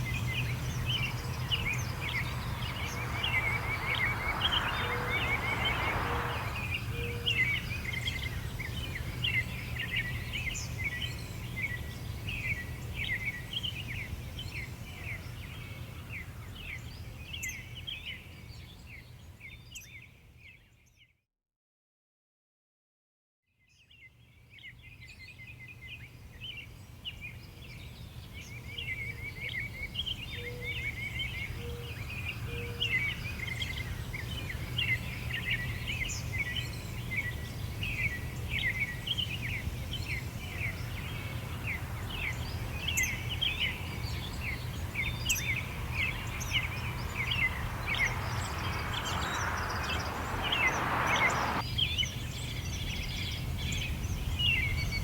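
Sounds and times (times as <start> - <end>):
low outdoor rumble: 0.0 - 7.3, 39.9 - 51.6
rushing noise: 0.0 - 7.3, 40.6 - 51.6
songbirds chirping and twittering: 0.0 - 20.0, 24.4 - 55.0.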